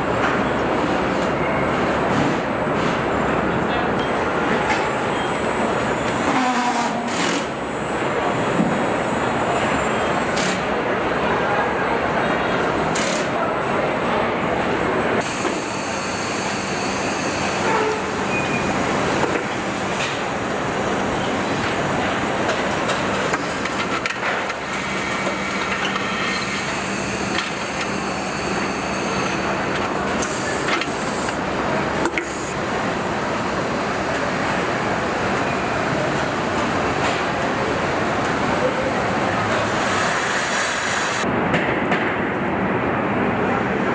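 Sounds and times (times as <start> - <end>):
conveyors and machinery din: 0.0 - 43.9.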